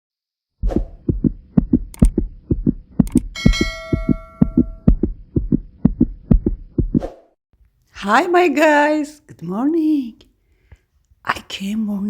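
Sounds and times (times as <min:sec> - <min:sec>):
low heartbeat-like thumps: 0:00.6 - 0:07.2
bell chime ringing: 0:03.4 - 0:04.9.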